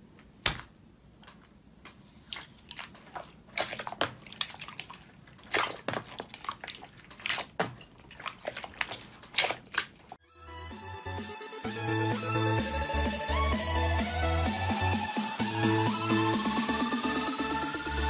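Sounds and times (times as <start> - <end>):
slime squelching and popping: 2.2 - 10.2
electronic dance music: 10.4 - 18.0.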